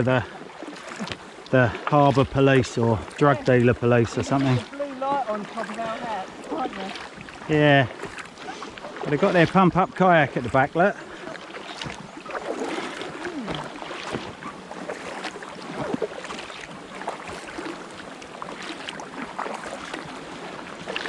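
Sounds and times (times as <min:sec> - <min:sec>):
kayak paddling: 0:00.0 - 0:21.0
water splashing and dripping: 0:00.0 - 0:21.0.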